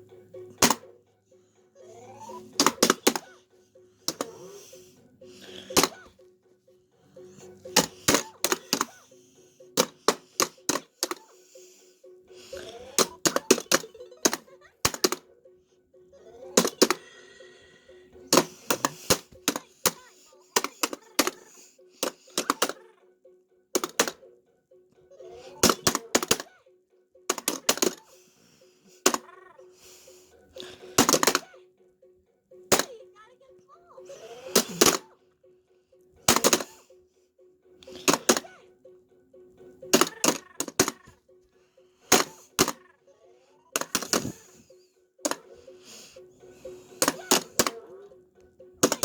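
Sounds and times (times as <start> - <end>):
plastic whacks: 0.6 - 0.8, 2.5 - 3.4, 9.8 - 11.3, 13.0 - 15.2, 16.6 - 17.0, 18.3 - 22.8, 23.8 - 24.2, 25.5 - 26.5, 27.3 - 28.1, 31.0 - 31.5, 32.7 - 32.9, 34.5 - 35.0, 36.3 - 36.8, 37.9 - 38.5, 39.9 - 41.1, 42.1 - 42.8, 43.8 - 44.6, 45.2 - 45.5, 47.0 - 47.9, 48.8 - 49.0.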